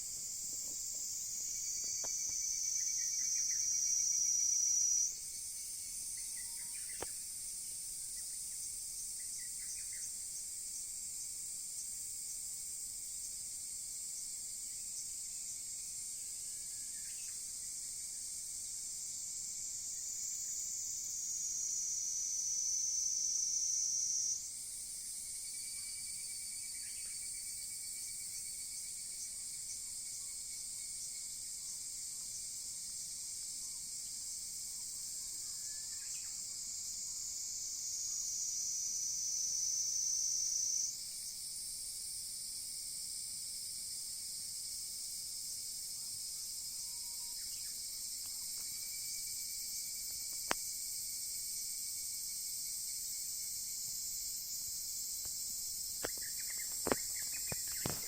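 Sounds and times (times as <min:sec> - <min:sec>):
insects buzzing: 0:00.0 - 0:58.0
loud high insect tone: 0:00.0 - 0:58.0
faint chirps: 0:56.0 - 0:58.0.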